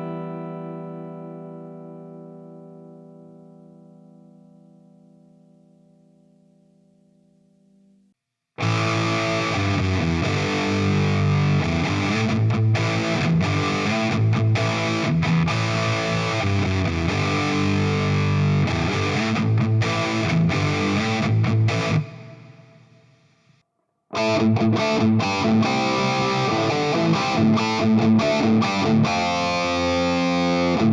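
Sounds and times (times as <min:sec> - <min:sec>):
distorted electric guitar riffing: 0:08.6 - 0:22.8, 0:24.2 - 0:30.9.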